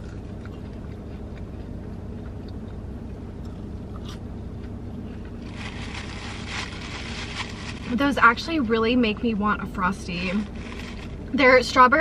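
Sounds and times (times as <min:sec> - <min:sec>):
chewing french fries: 0:00.0 - 0:07.6
car cabin rumble: 0:00.0 - 0:12.0.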